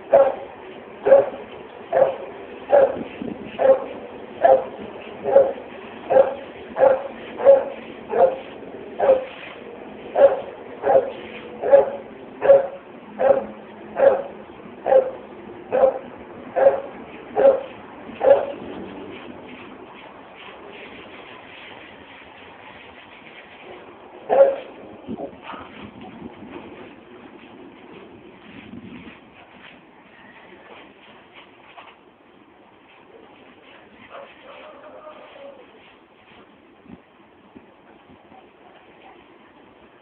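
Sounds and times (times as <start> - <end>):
dog barking: 0.1 - 3.0, 3.6 - 9.3, 10.2 - 18.6, 24.3 - 24.7.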